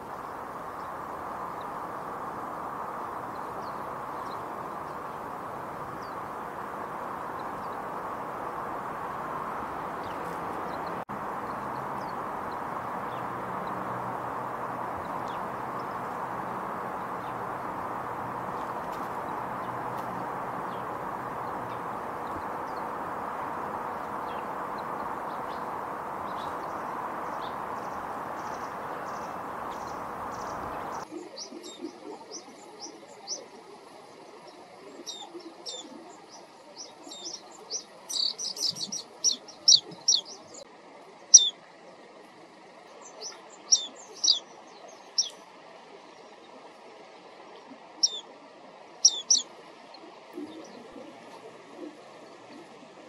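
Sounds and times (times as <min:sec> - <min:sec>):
steady rushing noise: 0:00.0 - 0:31.1
songbird chirping: 0:00.0 - 0:33.5, 0:34.9 - 0:40.7, 0:41.3 - 0:41.6, 0:43.0 - 0:45.4, 0:48.0 - 0:48.2, 0:49.0 - 0:49.5.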